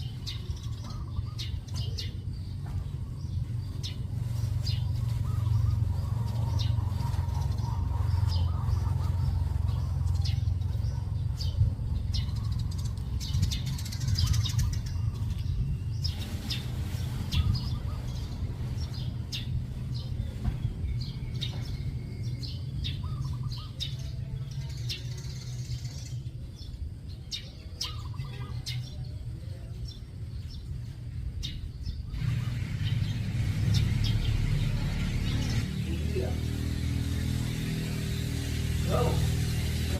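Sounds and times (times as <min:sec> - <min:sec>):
steady low rumble: 0:00.0 - 0:28.1
birds chirping: 0:00.0 - 0:39.9
low warbling bird calls: 0:00.0 - 0:39.9.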